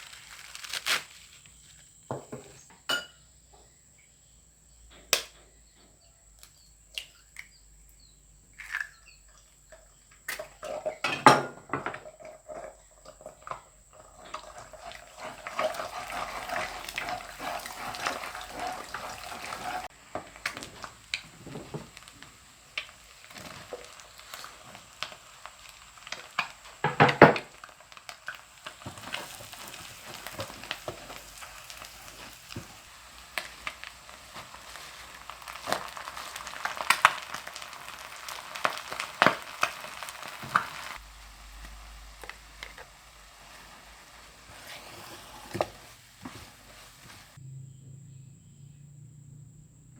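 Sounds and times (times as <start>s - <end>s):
greens sizzling in a pan: 0.0s - 3.1s, 7.8s - 47.4s
utensils clattering on pan: 10.4s - 22.1s, 26.1s - 27.7s.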